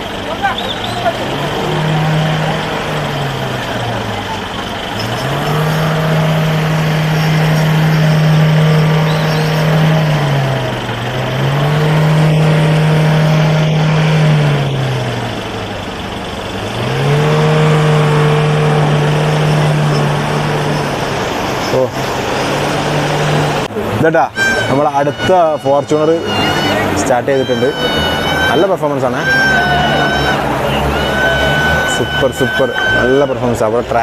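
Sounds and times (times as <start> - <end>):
off-road vehicle engine revving: 0.0 - 34.0.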